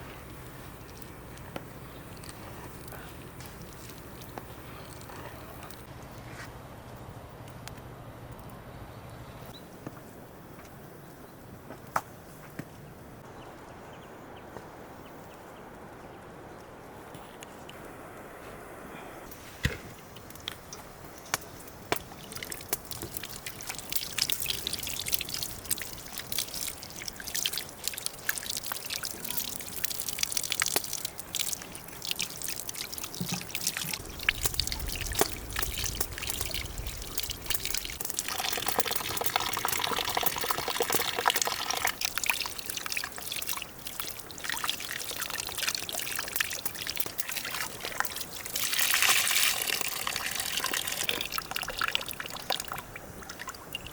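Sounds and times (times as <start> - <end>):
water trickling and pouring: 20.2 - 53.9.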